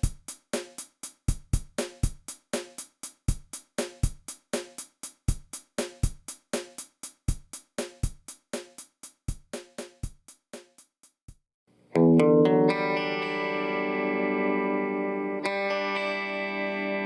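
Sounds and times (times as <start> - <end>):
kick and snare drum beat: 0.0 - 11.4.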